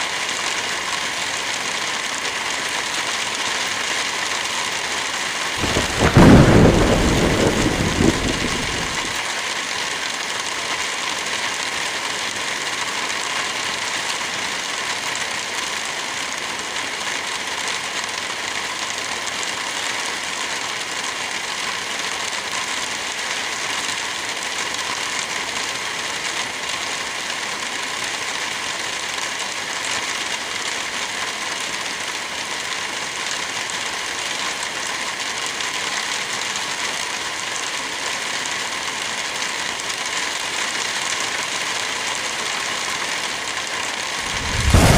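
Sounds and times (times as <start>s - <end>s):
heavy rain: 0.0s - 44.9s
thunder clap rumbling: 5.6s - 9.2s, 44.2s - 44.9s.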